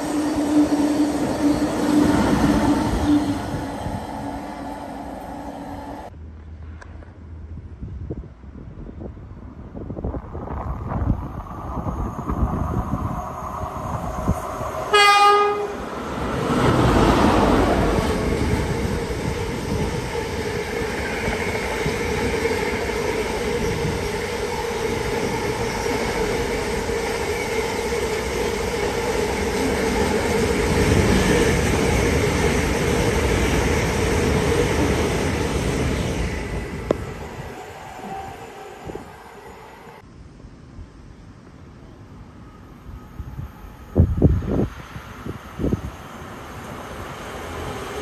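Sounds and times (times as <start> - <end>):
freight train passing: 0.0 - 7.5, 9.3 - 40.0, 41.8 - 48.0
train horn blast: 14.9 - 15.8.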